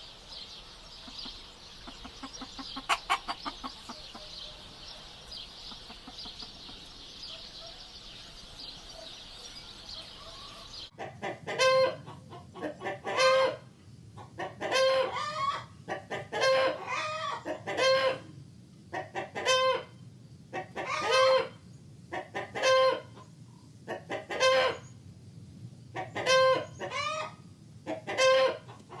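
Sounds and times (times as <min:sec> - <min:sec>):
chicken cackling: 0:01.0 - 0:23.3, 0:23.9 - 0:24.9, 0:26.0 - 0:29.0.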